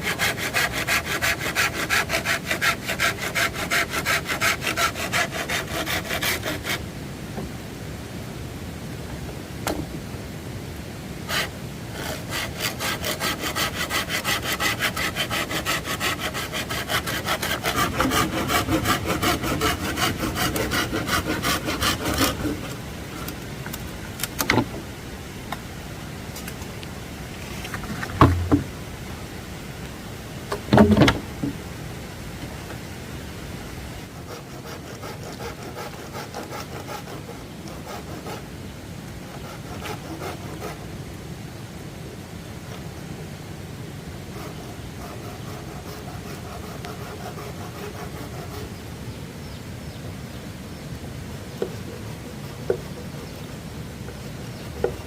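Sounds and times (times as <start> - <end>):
hand saw cutting wood: 0.0 - 6.8, 11.3 - 23.4, 27.8 - 28.7, 34.2 - 38.5, 39.2 - 40.8, 44.3 - 48.8
knocks: 28.1 - 28.7.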